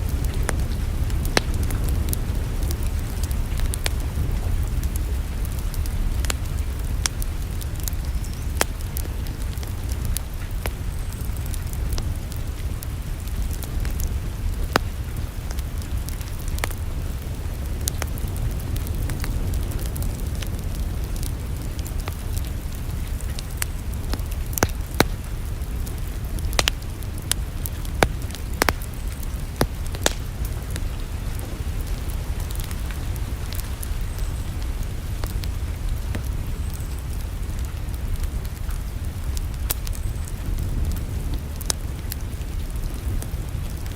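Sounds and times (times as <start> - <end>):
fire low rumble and hiss: 0.0 - 43.9
wood fire popping and snapping: 0.0 - 43.9.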